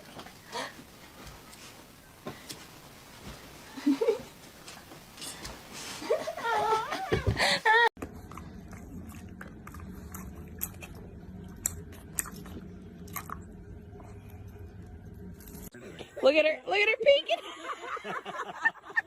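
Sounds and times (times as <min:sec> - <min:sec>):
steady low hum: 0:00.0 - 0:19.0
pet crunching food: 0:08.0 - 0:13.5.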